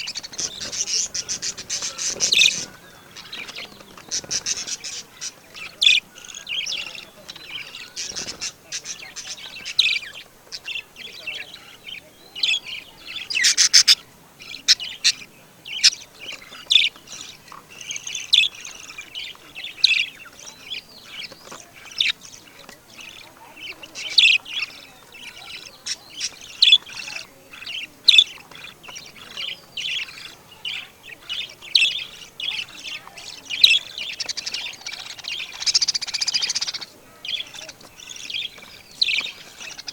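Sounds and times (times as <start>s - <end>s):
harsh buzzy bird call: 0.0s - 11.8s, 12.4s - 20.2s
birds chirping and squawking: 0.0s - 39.9s.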